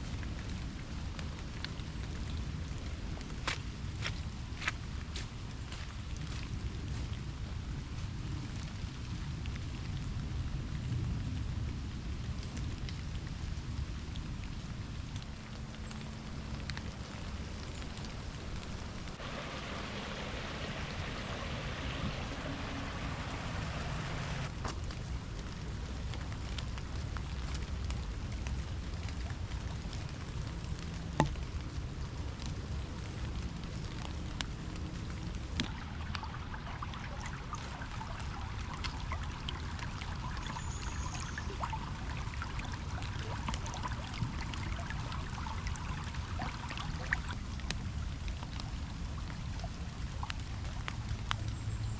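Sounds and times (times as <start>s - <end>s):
steady rain: 0.0s - 51.9s
rushing hiss: 19.2s - 24.5s.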